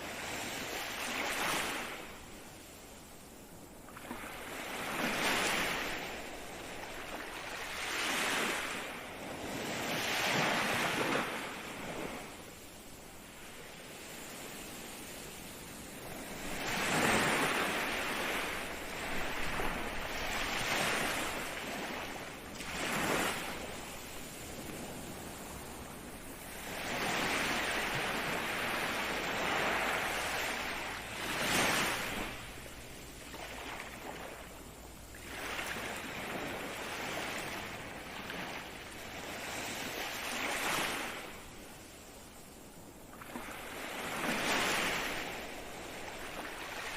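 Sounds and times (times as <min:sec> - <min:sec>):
ocean waves breaking: 0:03.9 - 0:41.4.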